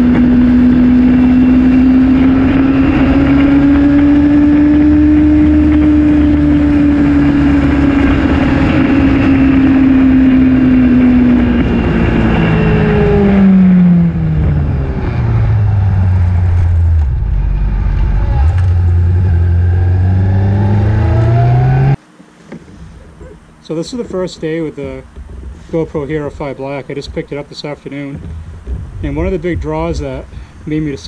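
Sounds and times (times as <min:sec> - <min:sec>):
motorbike engine at high revs: 0:00.0 - 0:22.0
wind rushing: 0:00.0 - 0:22.0.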